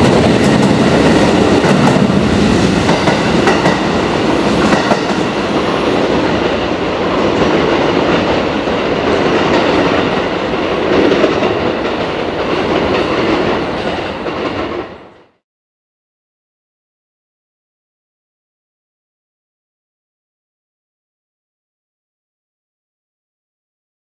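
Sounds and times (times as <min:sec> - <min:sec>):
electric train running on tracks: 0:00.0 - 0:15.4.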